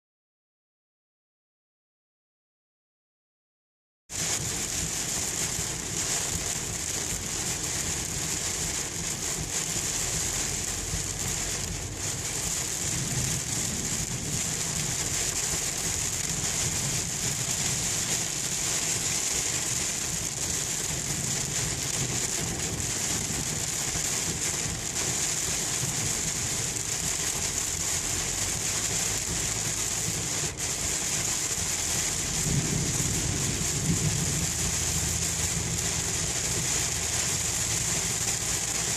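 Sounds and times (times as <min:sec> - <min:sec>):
heavy rain on a car: 0:04.1 - 0:38.9
car rumbling on the road: 0:04.2 - 0:38.9.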